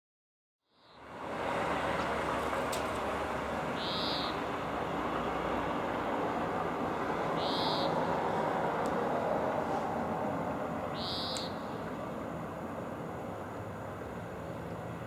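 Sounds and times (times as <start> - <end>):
city traffic hum: 0.6 - 15.0
small bird whistled calls: 3.8 - 4.4, 7.4 - 8.0, 10.9 - 11.8.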